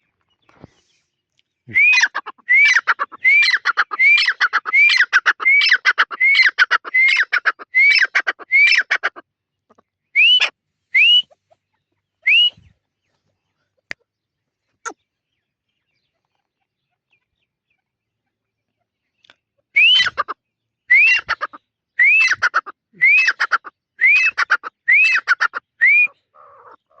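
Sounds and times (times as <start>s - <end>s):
bird calling harshly: 1.7s - 9.2s, 10.2s - 11.5s, 19.8s - 27.0s.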